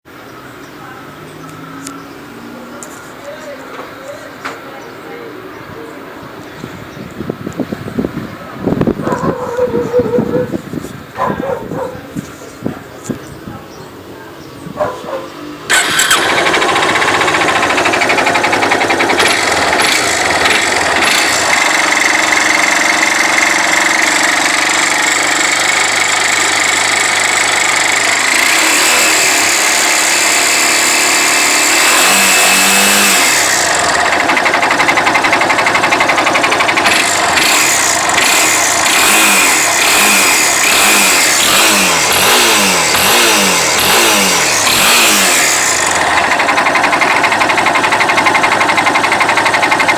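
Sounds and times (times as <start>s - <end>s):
motorcycle engine revving: 14.7s - 49.9s
motorcycle engine running: 14.7s - 49.9s
strange mechanical noise: 15.6s - 49.9s.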